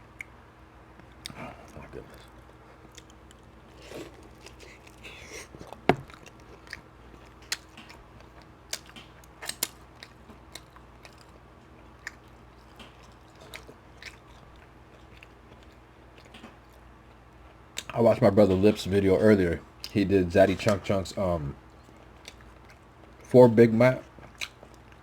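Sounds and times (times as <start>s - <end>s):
chewing and biting: 1.0s - 18.0s, 21.7s - 23.3s, 24.0s - 25.0s
wet mouth clicks and smacks: 8.7s - 11.3s.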